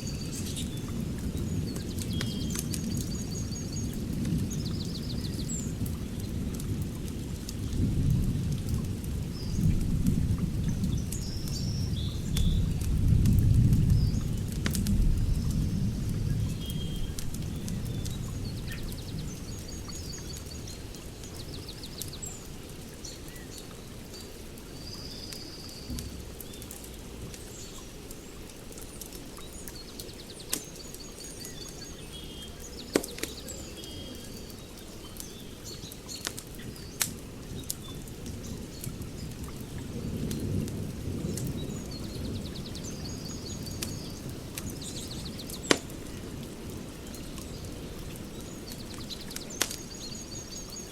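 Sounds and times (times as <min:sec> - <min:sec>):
birds chirping: 0:00.0 - 0:06.5, 0:15.0 - 0:50.9
wood fire crackling: 0:00.0 - 0:50.9
sharp fire pops: 0:12.3 - 0:15.7, 0:32.9 - 0:33.4, 0:36.2 - 0:37.2, 0:43.6 - 0:46.2, 0:49.3 - 0:50.0.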